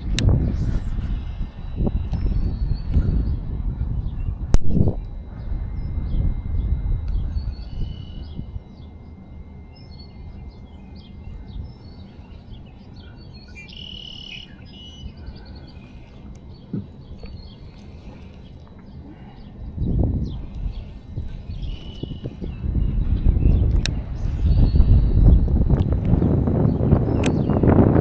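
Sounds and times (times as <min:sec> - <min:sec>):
birds chirping: 0:00.0 - 0:28.0
low rumbling background: 0:00.0 - 0:28.0
bird trilling call: 0:05.8 - 0:25.5.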